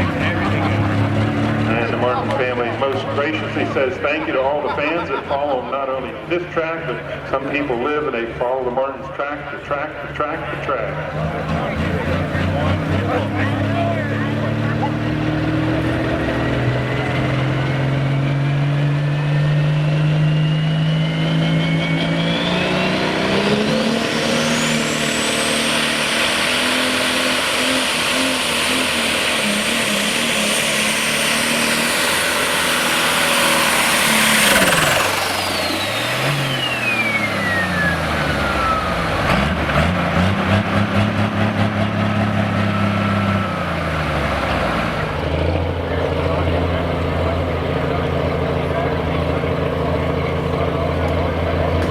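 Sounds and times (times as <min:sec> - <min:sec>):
pulling tractor diesel engine: 0:00.0 - 0:51.9
engine popping: 0:31.9 - 0:42.0.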